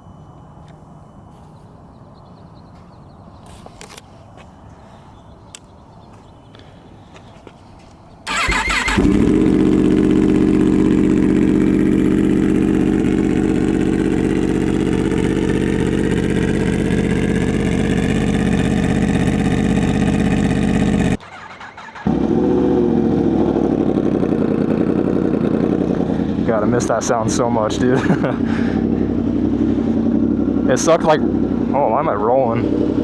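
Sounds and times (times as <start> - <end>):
motorcycle engine starting and idling: 8.2 - 33.0.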